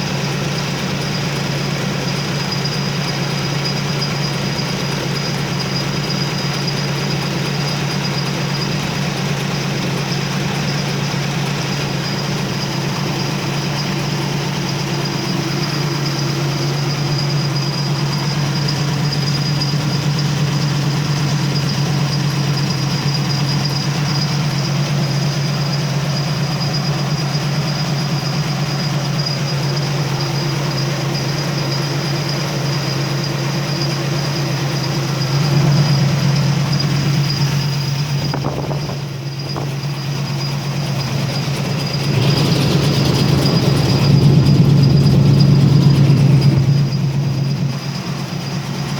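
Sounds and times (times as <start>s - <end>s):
car engine idling: 0.0s - 48.9s
thin high whine: 28.5s - 48.9s.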